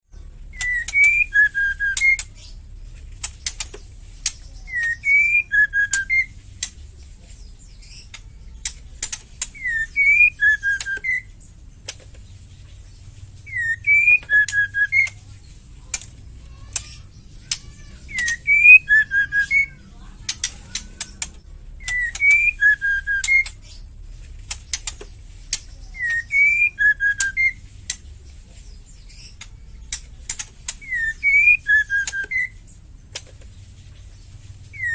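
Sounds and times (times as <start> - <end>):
bird whistled call: 0.5 - 2.5, 4.5 - 6.4, 9.6 - 11.4, 13.5 - 15.2, 17.4 - 19.8, 21.8 - 23.8, 25.8 - 27.6, 30.8 - 32.6, 34.6 - 34.9
bird clicking rattle calls: 0.5 - 6.8, 7.8 - 12.3, 13.5 - 23.8, 24.4 - 28.2, 29.1 - 33.5.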